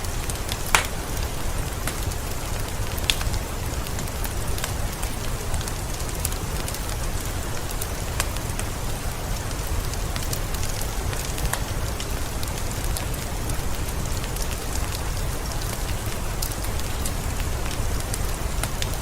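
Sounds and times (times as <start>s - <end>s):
heavy rain falling: 0.0s - 19.0s
raindrops tapping: 0.2s - 8.9s.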